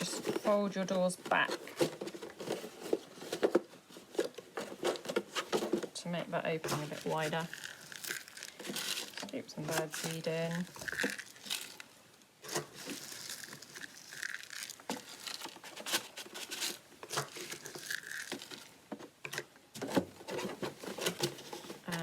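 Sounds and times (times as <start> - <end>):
bird seed rattling and rustling: 6.6 - 19.4.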